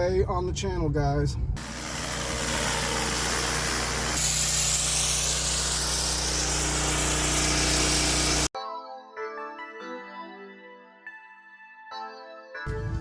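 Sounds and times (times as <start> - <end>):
high-pressure water spray hiss: 1.6 - 8.5
pressure washer engine running: 1.6 - 8.5
music: 8.6 - 13.0.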